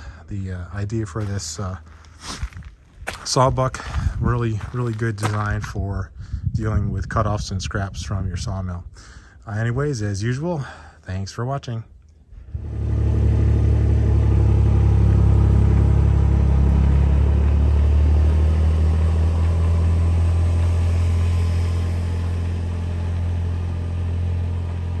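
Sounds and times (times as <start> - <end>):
engine rumbling steadily: 0.0 - 25.0.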